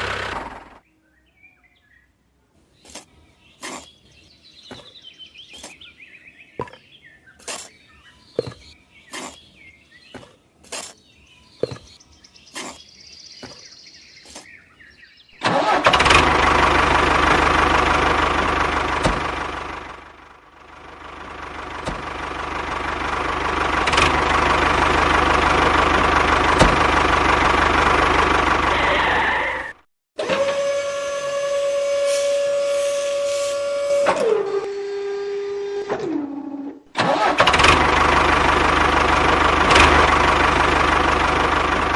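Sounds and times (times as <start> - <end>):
birds chirping faintly: 0.0 - 15.4.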